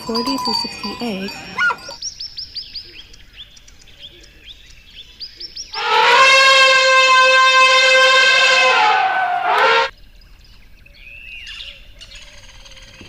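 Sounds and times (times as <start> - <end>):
elephant trumpeting: 5.8 - 9.9.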